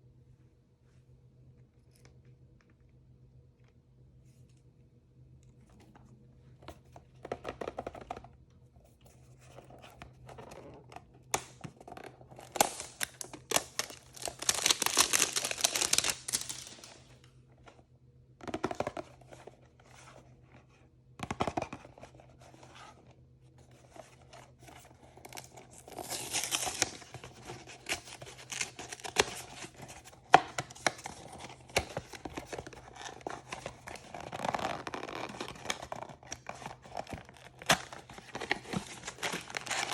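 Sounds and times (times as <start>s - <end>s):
plastic packaging tearing and crinkling: 11.3s - 17.2s, 25.2s - 39.9s.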